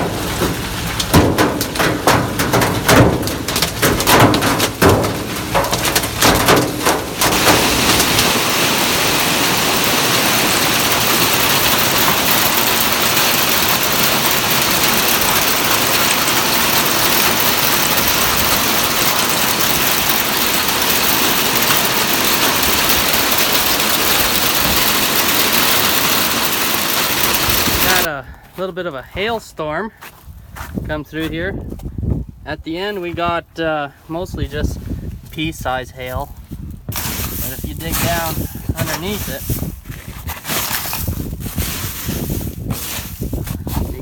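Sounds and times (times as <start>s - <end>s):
hail and rain hissing: 0.0s - 28.1s, 36.9s - 39.7s
hailstones hitting hard surface: 0.0s - 28.1s, 36.9s - 44.0s.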